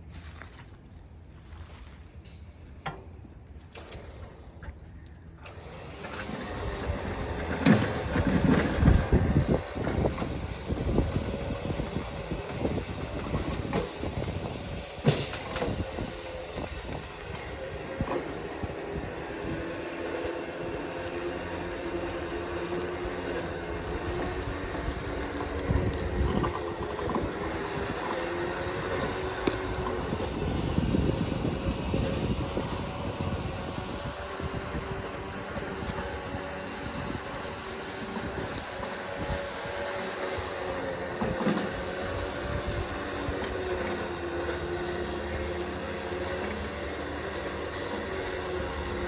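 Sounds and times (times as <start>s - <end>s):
vehicle engine rumble: 0.0s - 49.0s
road noise: 3.2s - 49.0s
wind noise: 6.0s - 45.1s.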